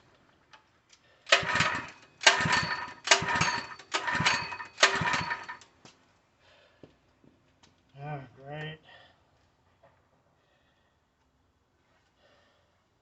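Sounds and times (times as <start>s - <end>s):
recoil starter pulls: 0.9s - 5.7s
small engine turning over: 1.3s - 5.7s.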